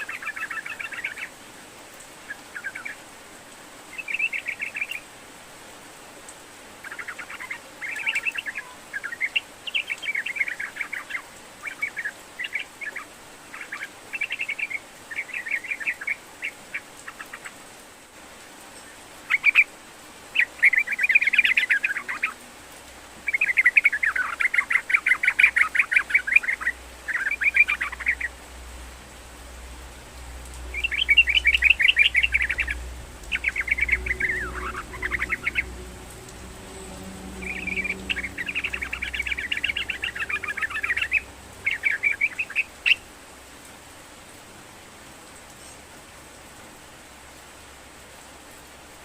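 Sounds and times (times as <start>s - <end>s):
bulbul chattering song: 23.2s - 28.4s, 30.6s - 43.1s.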